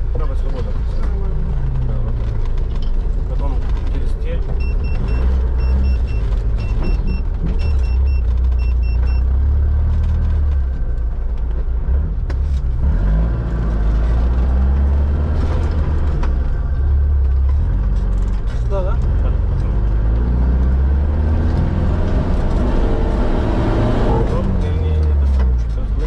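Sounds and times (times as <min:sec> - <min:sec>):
off-road vehicle engine rumbling: 0:00.0 - 0:26.0
short electronic beeps: 0:04.6 - 0:09.3.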